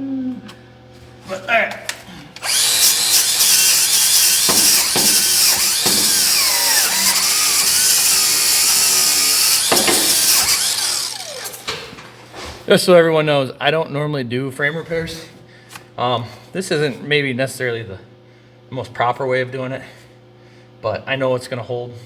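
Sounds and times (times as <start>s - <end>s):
angle grinder grinding steel: 2.4s - 11.9s.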